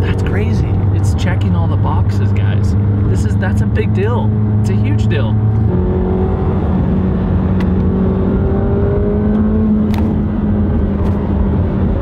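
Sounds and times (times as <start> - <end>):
car engine running: 0.0 - 12.0
road and tyre noise: 0.0 - 12.0.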